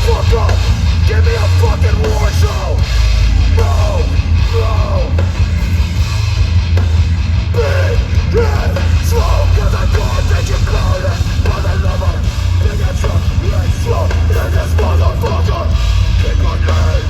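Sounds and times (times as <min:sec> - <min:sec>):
bass: 0:00.0 - 0:17.0
distorted guitars: 0:00.0 - 0:17.0
drums: 0:00.0 - 0:17.0.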